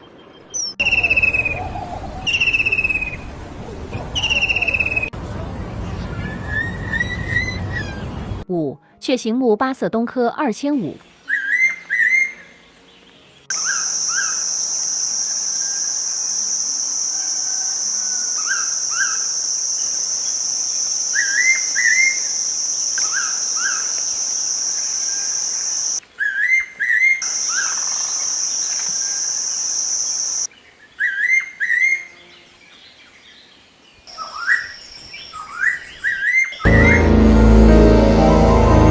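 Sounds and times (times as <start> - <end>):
bird whistled calls: 0.5 - 3.3, 4.0 - 5.1, 6.2 - 8.2, 11.3 - 12.4
high-pitched drone: 36.7 - 38.9.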